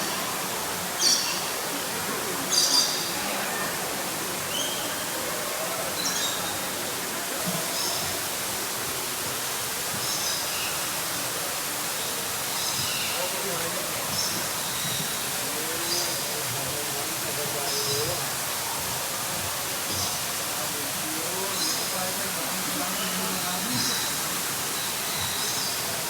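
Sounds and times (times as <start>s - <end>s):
birds chirping: 1.0s - 6.9s, 21.2s - 26.0s.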